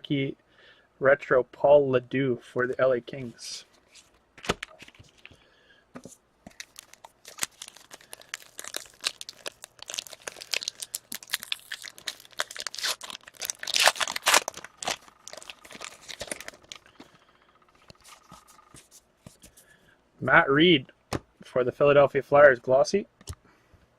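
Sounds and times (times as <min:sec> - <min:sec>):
foil wrapper crinkling and tearing: 0:06.5 - 0:17.0.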